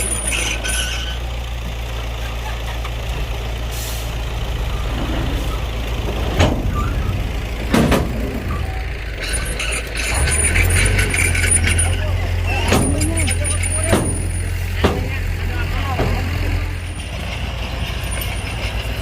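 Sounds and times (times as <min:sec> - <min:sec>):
heavy diesel machinery droning: 0:00.0 - 0:19.0
sharp metallic knocks: 0:12.6 - 0:19.0.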